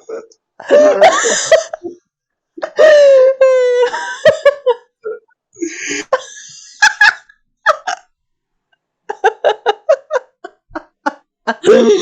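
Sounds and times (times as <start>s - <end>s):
person laughing: 0.7s - 2.0s, 5.6s - 8.0s, 9.1s - 12.0s.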